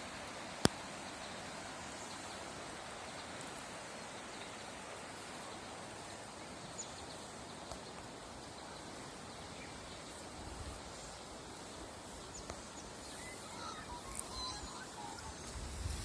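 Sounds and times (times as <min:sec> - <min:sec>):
rushing creek water: 0:00.0 - 0:16.0
faint high chirps: 0:12.0 - 0:15.9.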